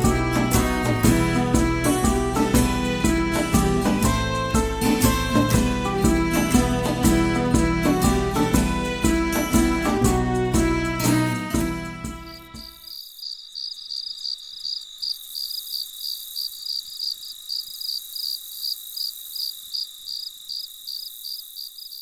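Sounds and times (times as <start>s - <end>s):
background music: 0.0s - 12.8s
cricket chirping: 12.2s - 22.0s.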